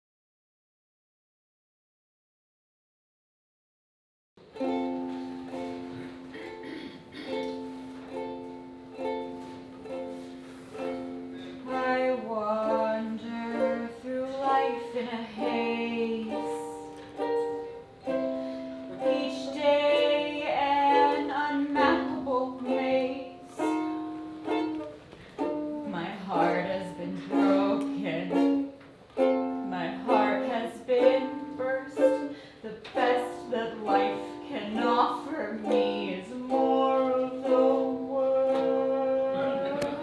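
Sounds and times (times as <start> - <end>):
ukulele playing: 4.4 - 40.0
person singing: 10.7 - 17.4, 18.0 - 24.7, 25.4 - 40.0.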